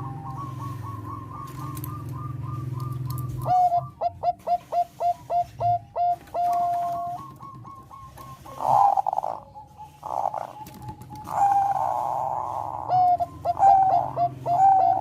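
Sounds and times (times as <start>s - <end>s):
dove cooing: 0.0s - 15.0s.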